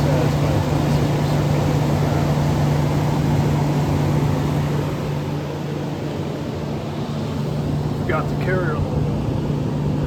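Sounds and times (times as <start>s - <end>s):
window air conditioner running: 0.0s - 10.0s.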